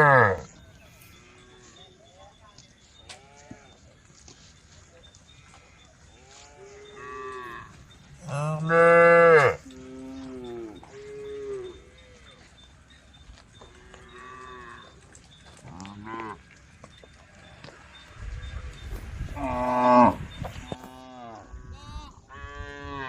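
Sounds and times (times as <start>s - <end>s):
cows mooing: 0.0s - 2.0s, 5.4s - 12.7s, 13.6s - 16.6s, 18.4s - 23.0s.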